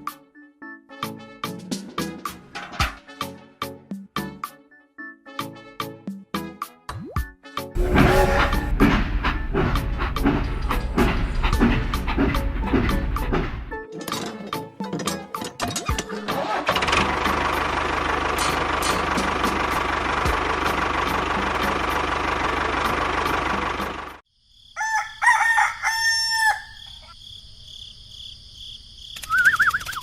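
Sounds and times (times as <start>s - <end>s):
loud steady machine noise: 7.8s - 13.7s, 16.9s - 24.2s
rooster crowing: 24.7s - 27.1s.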